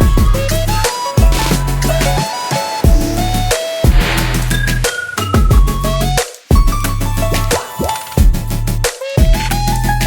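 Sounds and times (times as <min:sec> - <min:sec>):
electronic music with drums: 0:01.1 - 0:08.5.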